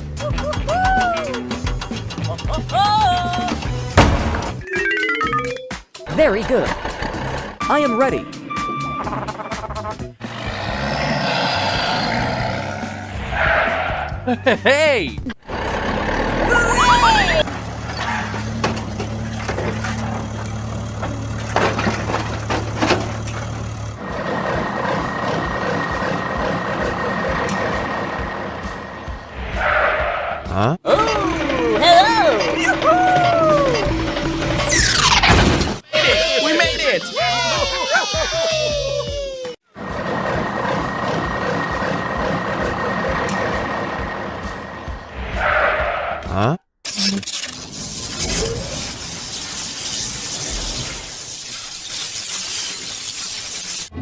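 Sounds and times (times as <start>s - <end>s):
truck engine running: 0.0s - 4.6s, 6.0s - 35.8s, 39.6s - 46.2s
knocks and clicks: 0.2s - 4.7s
high-pitched mechanical sound: 46.9s - 54.0s.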